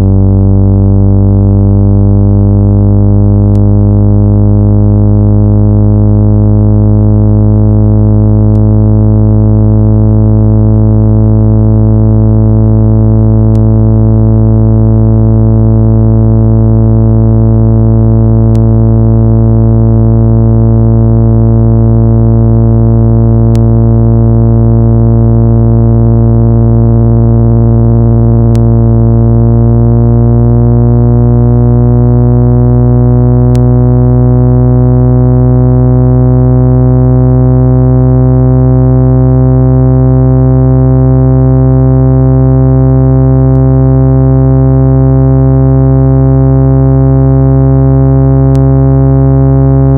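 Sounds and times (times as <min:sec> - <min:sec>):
low synthesized buzzing tone: 0:00.0 - 0:49.9.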